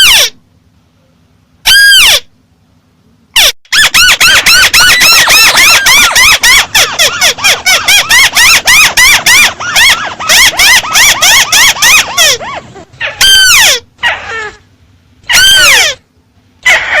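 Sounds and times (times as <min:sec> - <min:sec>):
bird call shrill notes: 0:01.7 - 0:02.3.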